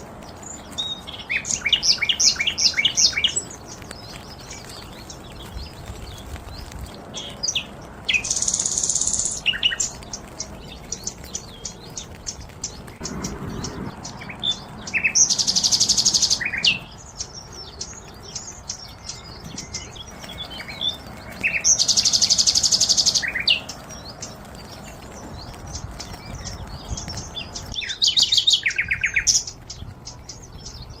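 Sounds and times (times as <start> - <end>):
birds chirping and calling: 0.0 - 31.0
loud rapid high bird trill: 7.2 - 31.0.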